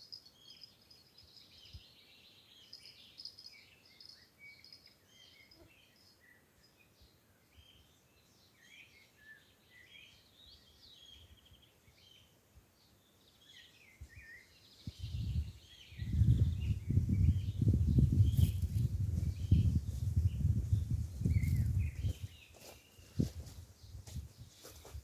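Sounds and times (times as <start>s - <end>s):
songbirds chirping: 0.0s - 25.0s
rough low microphone rumble: 14.9s - 22.2s.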